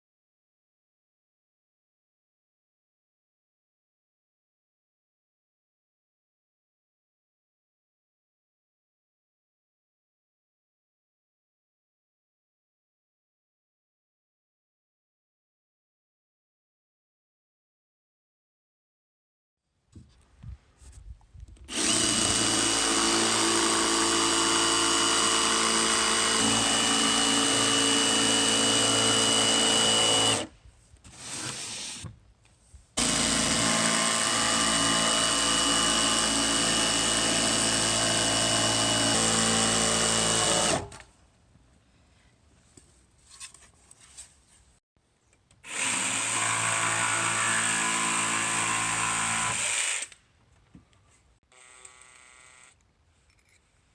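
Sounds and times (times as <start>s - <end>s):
electric power tool running: 21.7s - 30.5s, 33.0s - 40.9s, 45.7s - 50.2s, 51.5s - 52.8s.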